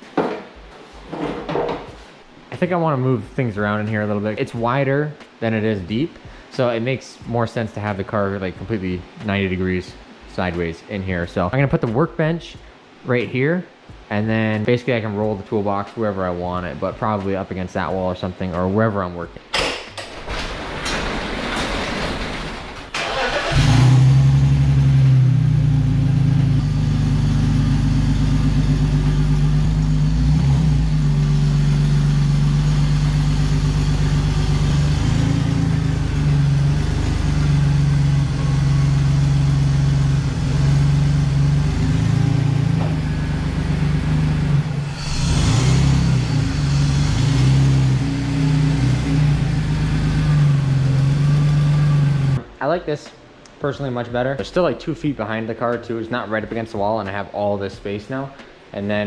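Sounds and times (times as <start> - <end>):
car engine starting and running: 21.2 - 52.5.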